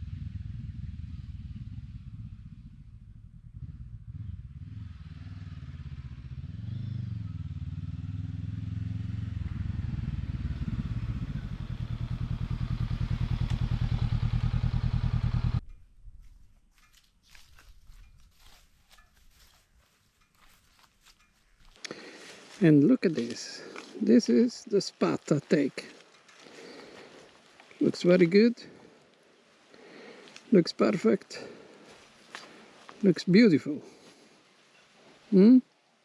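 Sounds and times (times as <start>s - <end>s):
motorcycle engine running: 0.0s - 15.7s.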